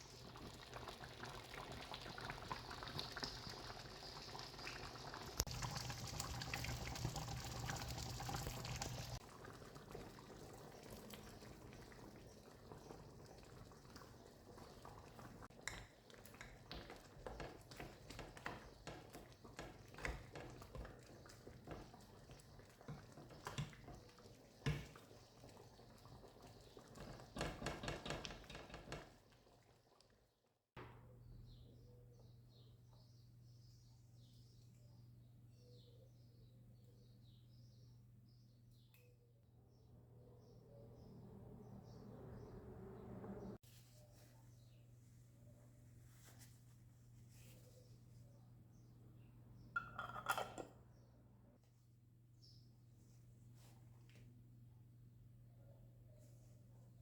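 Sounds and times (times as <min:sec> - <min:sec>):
running liquid rushing: 0:01.8 - 0:09.5.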